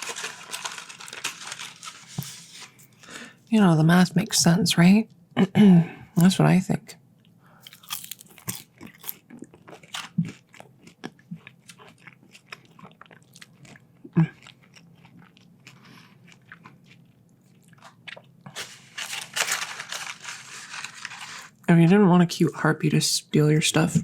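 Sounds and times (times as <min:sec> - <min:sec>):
crunching and chewing fries: 0:00.0 - 0:03.1, 0:07.2 - 0:21.7.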